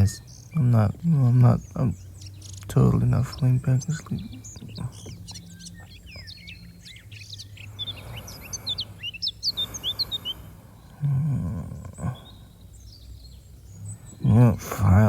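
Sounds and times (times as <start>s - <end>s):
small songbirds chirping: 0.0s - 15.0s
soft outdoor hiss: 0.0s - 15.0s
man humming: 2.8s - 5.2s, 11.0s - 12.4s.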